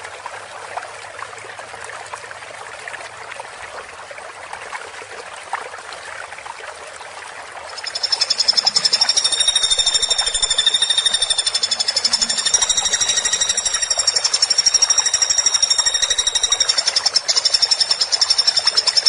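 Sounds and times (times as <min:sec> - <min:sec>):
trickling water: 0:00.0 - 0:19.0
woodpecker rattling trill: 0:07.8 - 0:19.0.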